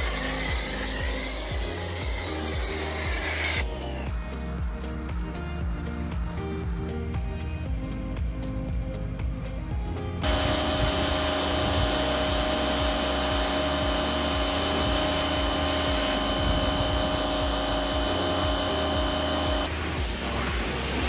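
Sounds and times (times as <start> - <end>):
loud rushing hiss: 0.0 - 4.1, 10.2 - 21.0
electric motor whine: 0.0 - 6.8, 10.2 - 21.0.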